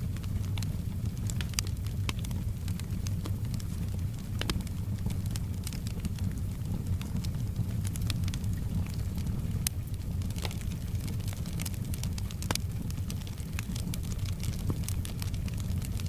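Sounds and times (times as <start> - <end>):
soft rain: 0.0 - 16.0
wood fire crackling: 0.0 - 16.0.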